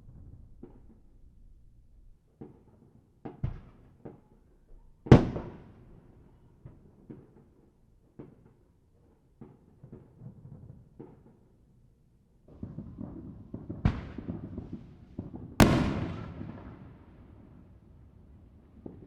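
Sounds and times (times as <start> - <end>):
distant fireworks booms and pops: 12.5 - 19.0
loud firework bang with echo: 15.6 - 16.9.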